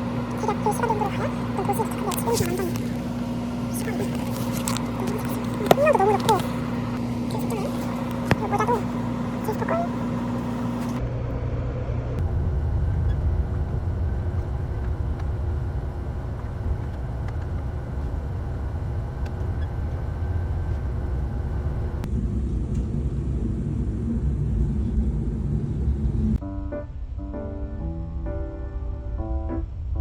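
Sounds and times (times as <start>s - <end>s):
passenger train rumble: 0.0s - 27.2s.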